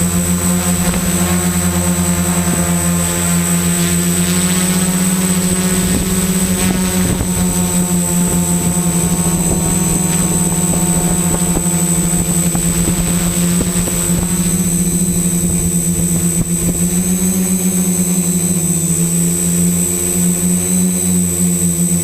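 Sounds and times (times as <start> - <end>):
drone motors and propellers: 0.0 - 22.0
wind buffeting: 4.8 - 18.8.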